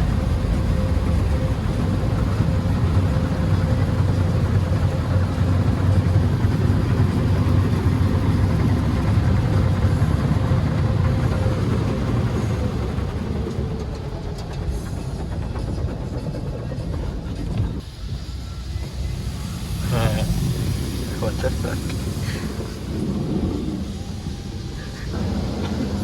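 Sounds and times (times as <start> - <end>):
car wash mechanical rumble: 16.6 - 26.0.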